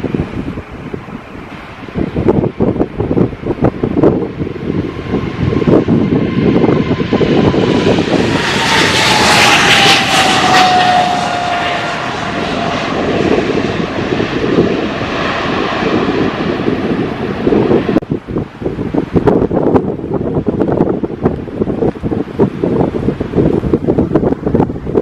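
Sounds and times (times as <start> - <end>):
airliner engines roaring: 0.0 - 25.0
wind rumble on microphone: 0.0 - 25.0
engine whine falling in pitch: 3.8 - 18.0.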